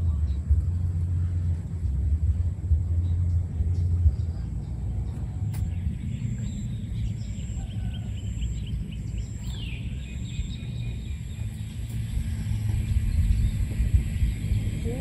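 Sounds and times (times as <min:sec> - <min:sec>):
low rumble: 0:00.0 - 0:15.0
bird chirping: 0:03.0 - 0:15.0.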